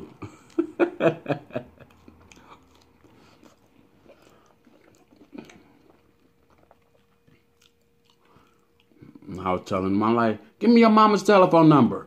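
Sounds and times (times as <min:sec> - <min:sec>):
person chewing: 0:01.6 - 0:09.6
wet mouth sounds: 0:01.7 - 0:09.4.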